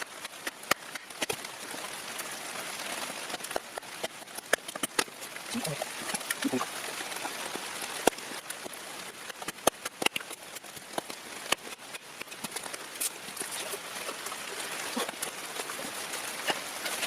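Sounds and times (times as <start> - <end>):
steady rain: 0.0 - 17.0
sharp taps and clicks: 9.3 - 13.1.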